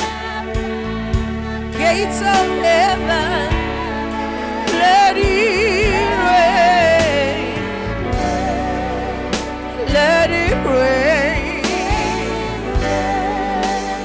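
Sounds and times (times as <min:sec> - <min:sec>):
bass: 0:00.0 - 0:14.0
keyboard chords: 0:00.0 - 0:14.0
woman singing with vibrato: 0:00.0 - 0:14.0.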